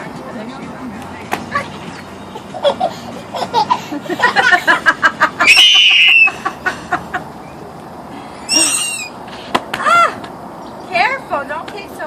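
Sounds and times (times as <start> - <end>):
child laughing: 2.3 - 7.2, 8.5 - 9.1
child squealing: 5.4 - 6.4, 8.5 - 9.2.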